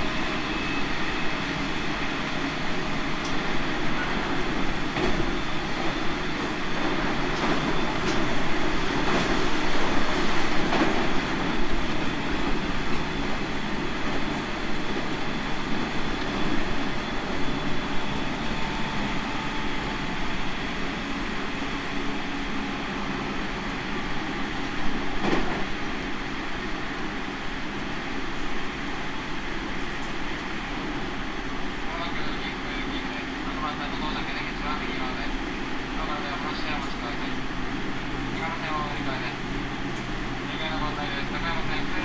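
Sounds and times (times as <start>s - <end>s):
train wheels rumbling on rail: 0.0s - 42.0s
rail-joint clicks: 3.2s - 3.4s, 7.3s - 8.4s.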